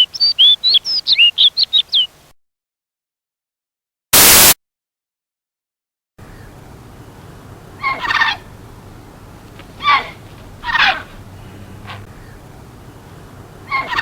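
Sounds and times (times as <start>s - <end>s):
faint outdoor background: 0.0s - 2.4s, 6.2s - 14.0s
loud hiss burst: 4.2s - 4.6s
rapid rattling bird call: 6.4s - 14.0s.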